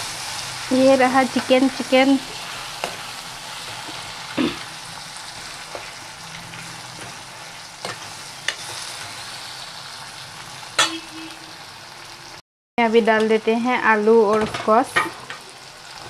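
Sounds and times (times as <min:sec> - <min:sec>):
food sizzling in a pan: 0:00.0 - 0:16.0
metal spatula scraping: 0:10.8 - 0:11.4.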